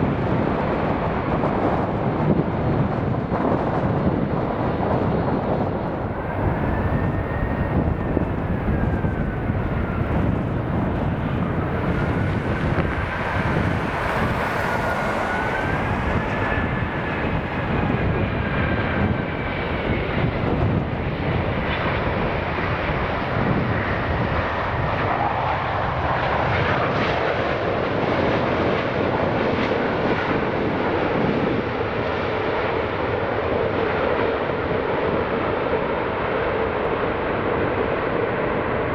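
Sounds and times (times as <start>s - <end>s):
jet airliner engines: 0.0s - 38.9s
jet engine whine: 0.0s - 38.9s.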